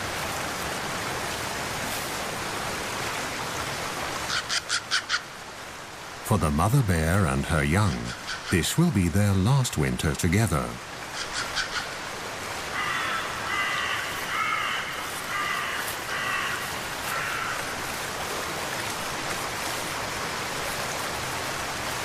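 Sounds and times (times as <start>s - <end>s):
hiss of rain or running water: 0.0s - 22.0s
bird giving harsh calls: 7.9s - 8.6s, 11.2s - 11.9s.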